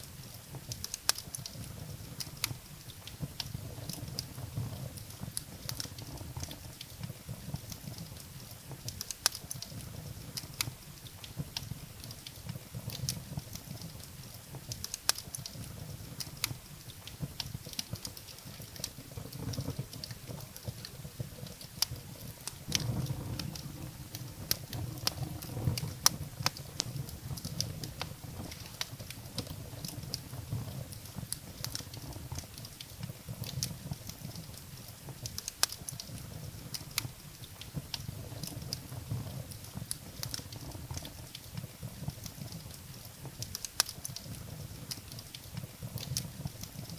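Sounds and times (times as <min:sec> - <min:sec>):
firewood crackling and popping: 0:00.0 - 0:46.9
low rumble of flames: 0:00.0 - 0:46.9.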